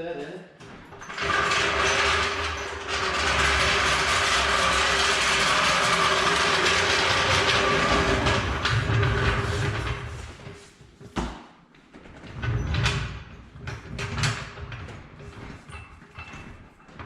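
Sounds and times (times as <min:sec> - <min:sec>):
car jack rattling rumble: 0:00.9 - 0:10.2.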